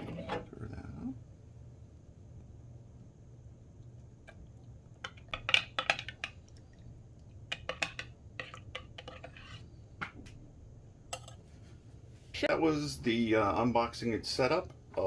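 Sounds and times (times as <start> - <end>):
spoon clinking in a mug: 11.1 - 11.4.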